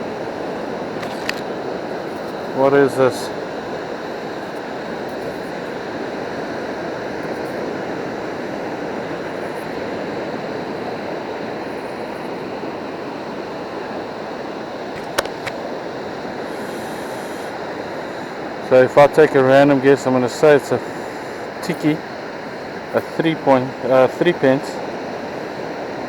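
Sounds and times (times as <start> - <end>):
surf washing on beach: 0.0 - 26.0
sharp clicks: 15.0 - 15.6.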